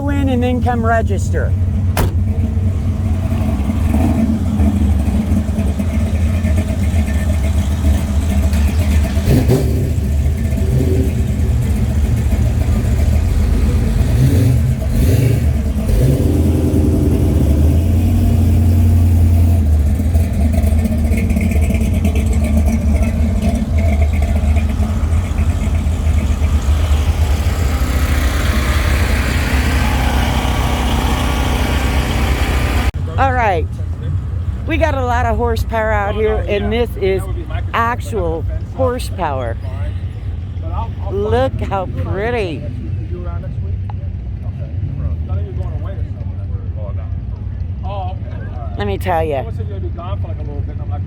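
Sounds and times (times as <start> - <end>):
car engines rumbling and revving: 0.0 - 51.0.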